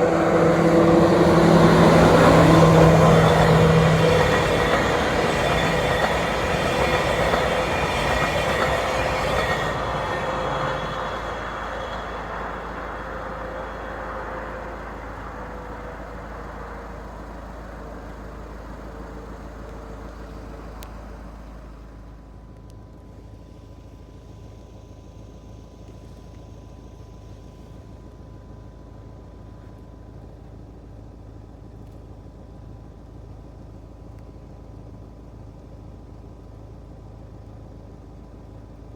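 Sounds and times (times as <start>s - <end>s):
passenger train passing: 0.0s - 22.2s.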